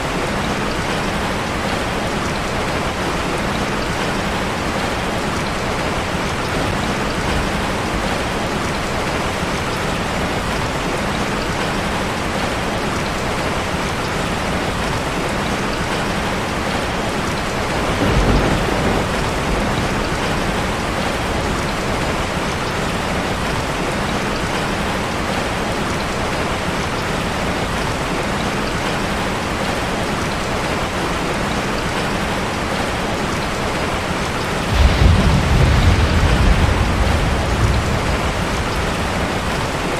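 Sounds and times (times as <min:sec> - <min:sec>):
rain on a metal roof: 0:00.0 - 0:39.9
low rumble: 0:34.7 - 0:39.9.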